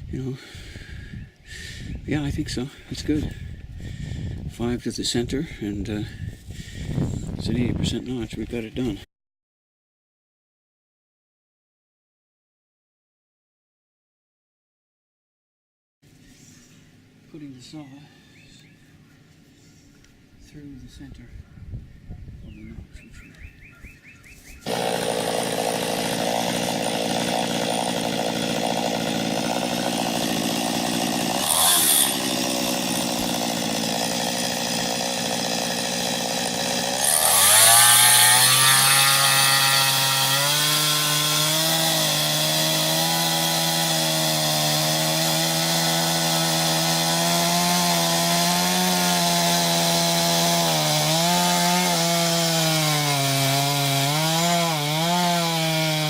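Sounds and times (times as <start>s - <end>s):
chainsaw cutting wood: 24.6s - 56.0s.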